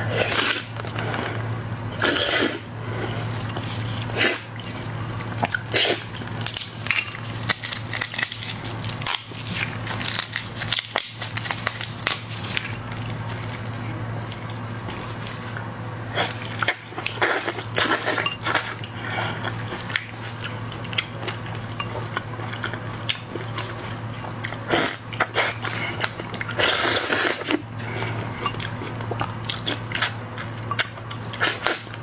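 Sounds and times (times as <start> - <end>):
shells cracking and crunching: 6.4 - 13.2.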